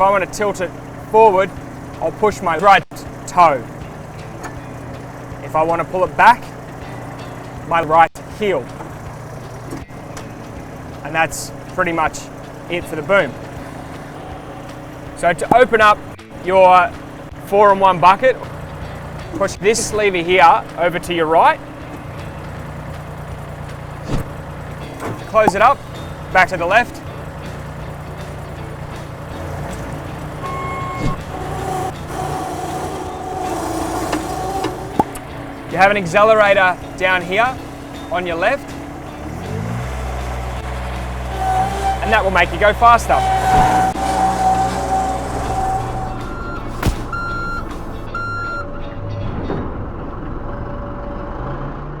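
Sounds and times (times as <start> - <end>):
skid steer engine running: 0.0 - 52.0
reversing alarm beeps: 30.4 - 31.2, 46.1 - 48.8.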